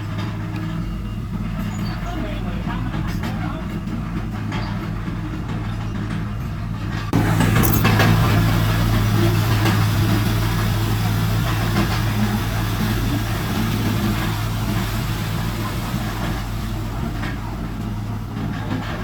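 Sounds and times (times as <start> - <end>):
heavy diesel engine humming: 0.0 - 19.0.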